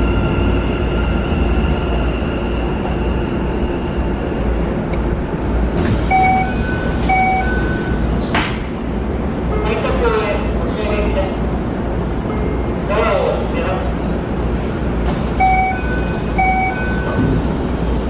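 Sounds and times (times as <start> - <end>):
train motor whine: 5.8 - 8.2.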